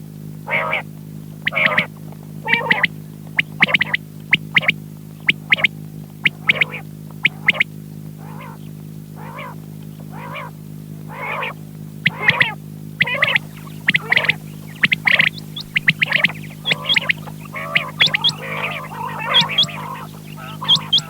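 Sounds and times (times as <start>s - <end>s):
steady low hum: 0.0s - 21.0s
quails calling: 0.5s - 21.0s
high chirps: 1.5s - 7.6s, 11.1s - 21.0s.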